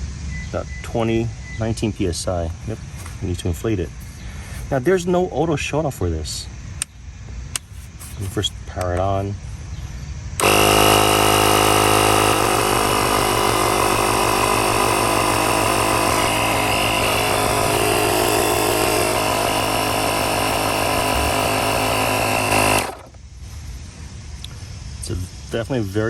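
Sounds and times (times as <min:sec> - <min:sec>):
air compressor running: 0:10.4 - 0:23.2.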